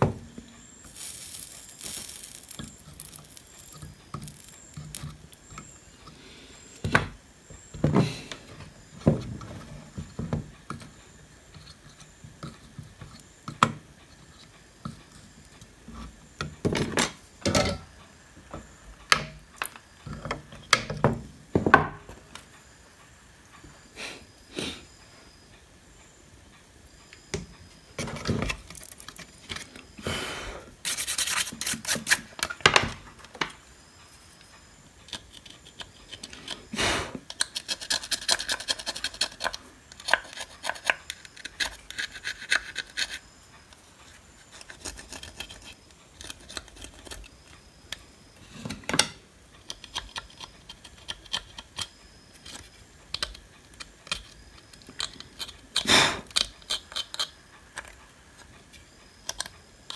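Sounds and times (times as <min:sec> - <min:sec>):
hand scratching circuit board: 0:30.8 - 0:32.3, 0:37.4 - 0:43.2.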